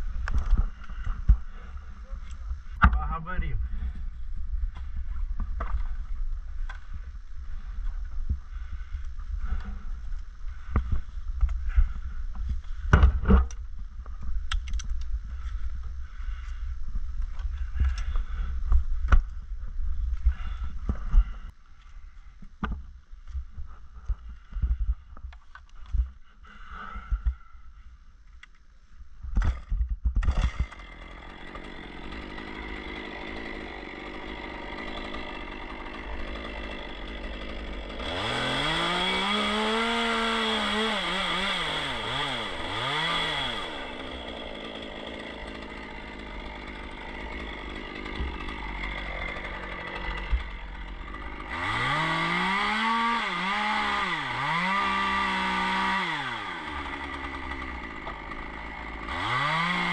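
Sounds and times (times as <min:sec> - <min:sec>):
chainsaw idling and revving: 0:30.3 - 0:59.9.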